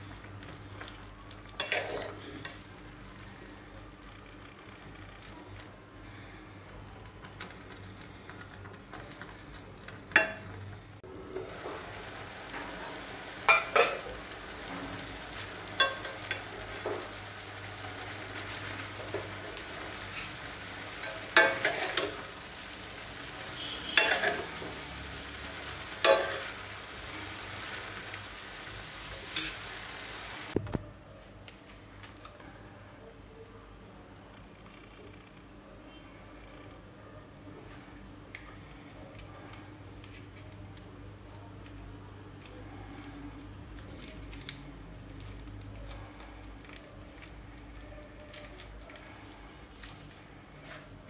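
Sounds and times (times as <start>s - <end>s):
noodles sizzling in a wok: 10.1s - 30.6s
utensils scraping a pan: 21.0s - 22.2s.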